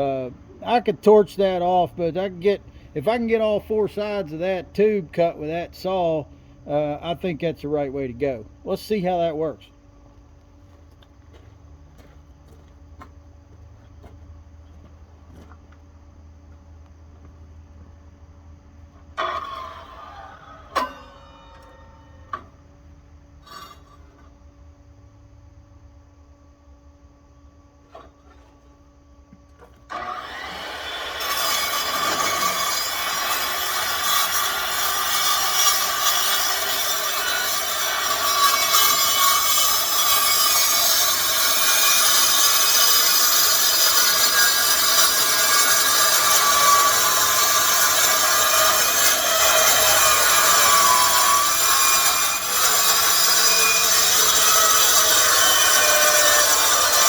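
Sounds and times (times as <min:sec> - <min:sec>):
circular saw cutting metal: 0:19.2 - 0:22.6, 0:29.9 - 0:57.0.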